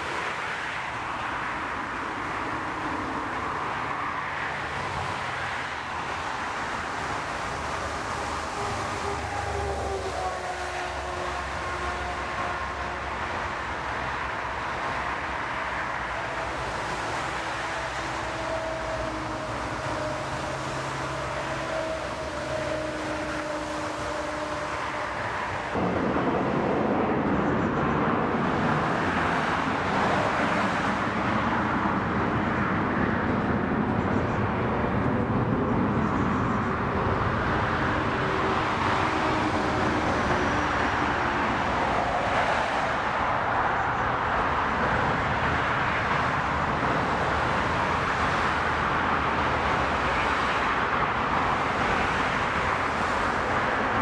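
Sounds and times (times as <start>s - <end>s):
jet engines rushing: 12.2s - 54.0s.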